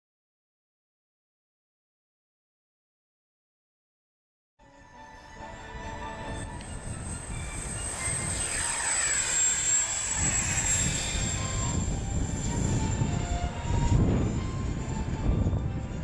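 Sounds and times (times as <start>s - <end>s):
jet turbofan whine: 4.6s - 16.0s
low jet rumble: 4.9s - 16.0s.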